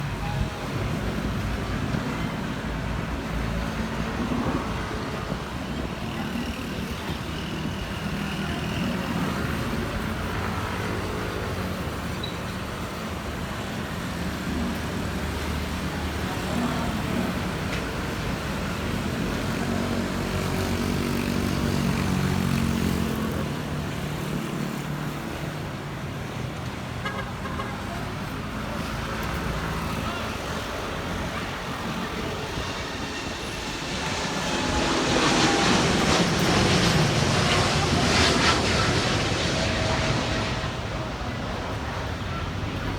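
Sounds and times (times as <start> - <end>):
road traffic: 0.0 - 42.9
jet engines rumbling: 28.0 - 42.9.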